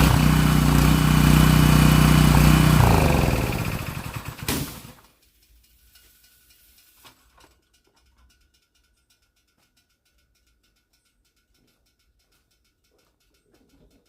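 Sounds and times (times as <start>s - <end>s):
lawnmower engine running: 0.0s - 5.0s
sharp pop: 4.4s - 4.9s
faint ticks: 5.2s - 14.0s.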